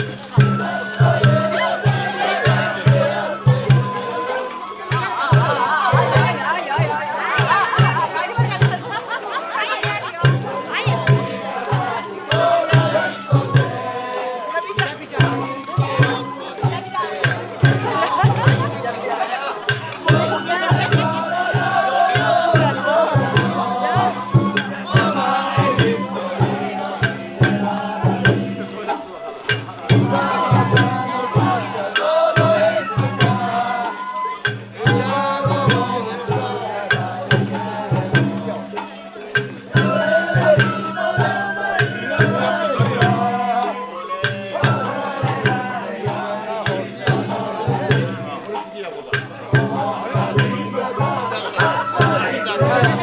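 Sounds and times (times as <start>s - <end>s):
sliding festival melody: 0.0s - 53.0s
taiko drums beating: 0.0s - 53.0s.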